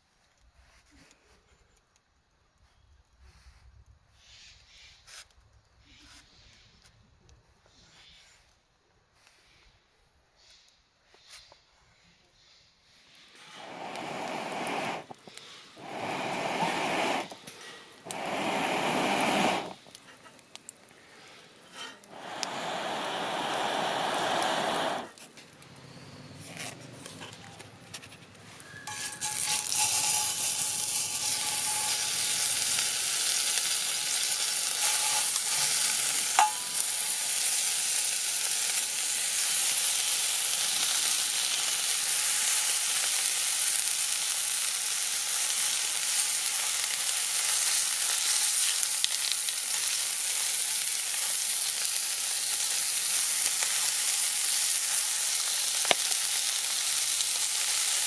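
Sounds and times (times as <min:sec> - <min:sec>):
food sizzling in a pan: 0:13.1 - 0:20.4, 0:21.2 - 0:25.2, 0:28.7 - 0:58.0.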